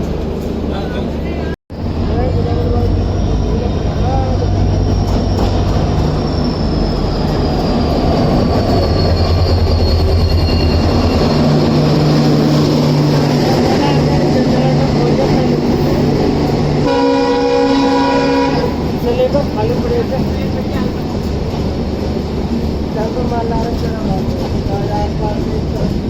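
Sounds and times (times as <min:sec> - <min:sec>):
train running on track: 0:00.0 - 0:26.0
train horn: 0:16.8 - 0:18.9.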